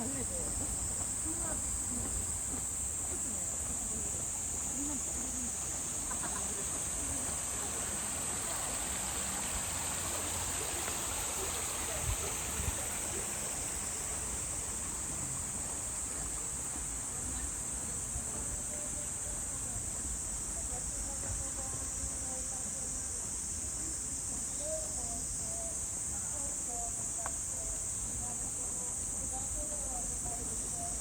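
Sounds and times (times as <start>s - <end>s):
flowing water: 0.0s - 24.4s
insect chorus drone: 0.0s - 31.0s.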